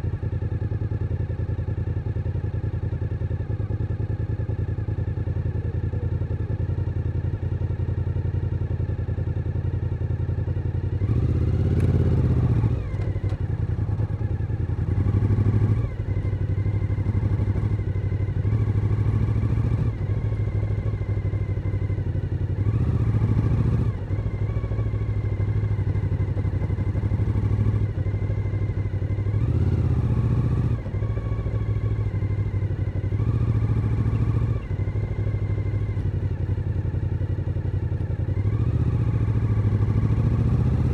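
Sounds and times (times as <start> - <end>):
motorcycle engine revving: 10.7 - 40.9.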